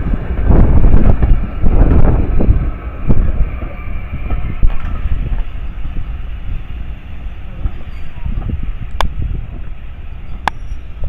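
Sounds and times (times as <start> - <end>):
train rumbling on track: 0.0 - 11.0.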